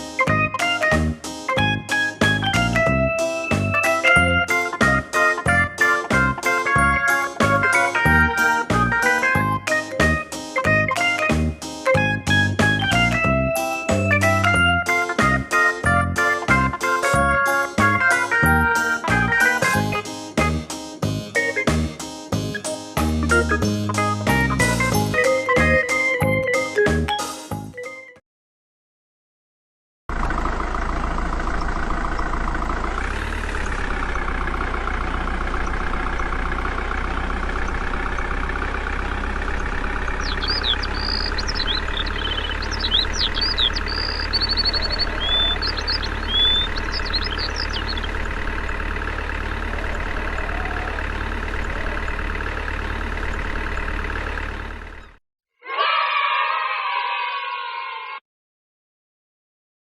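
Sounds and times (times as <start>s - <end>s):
engine idling: 0.0s - 25.2s, 30.1s - 55.2s
short high chirps: 40.1s - 48.2s.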